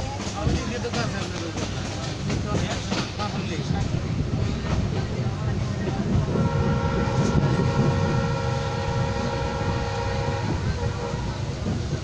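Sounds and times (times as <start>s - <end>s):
moving train rumble: 0.0s - 12.0s
train horn blast: 6.3s - 11.9s.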